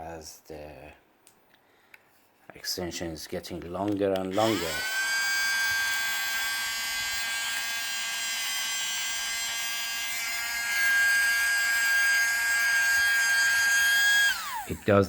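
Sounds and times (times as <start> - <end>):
small vacuum motor whining: 4.3 - 15.0.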